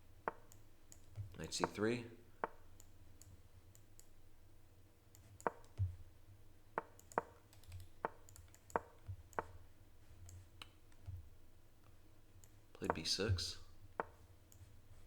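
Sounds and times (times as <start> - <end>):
mouse clicks: 0.3 - 1.8, 2.4 - 4.2, 5.1 - 6.0, 6.8 - 9.6, 12.4 - 13.2, 14.0 - 14.7.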